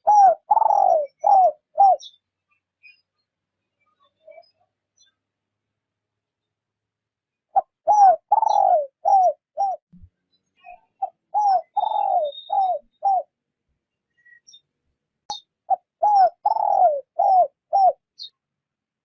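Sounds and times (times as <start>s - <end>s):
dove cooing: 0.0s - 2.1s, 7.5s - 9.8s, 11.0s - 13.3s, 15.7s - 18.0s.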